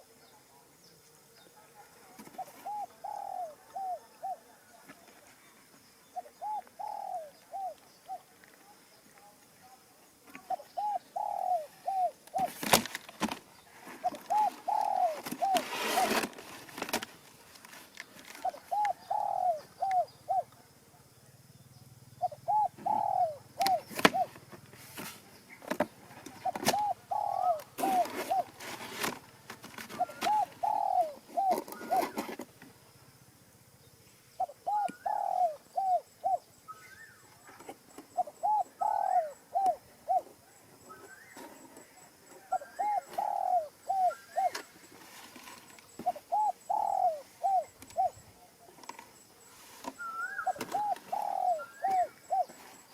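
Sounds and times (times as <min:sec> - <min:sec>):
pigeons cooing: 0:01.5 - 0:04.8, 0:06.1 - 0:08.4, 0:10.3 - 0:17.1, 0:18.2 - 0:20.7, 0:22.2 - 0:24.7, 0:25.5 - 0:32.4, 0:34.4 - 0:48.8, 0:49.4 - 0:52.9.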